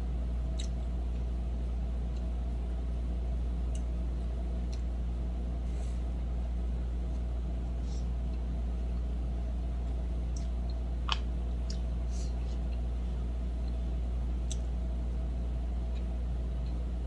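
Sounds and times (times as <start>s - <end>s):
person eating clicks and smacks: 0.4s - 1.3s, 2.1s - 2.4s, 3.6s - 5.0s, 9.8s - 12.9s, 13.5s - 13.8s, 14.4s - 14.8s, 15.8s - 16.9s.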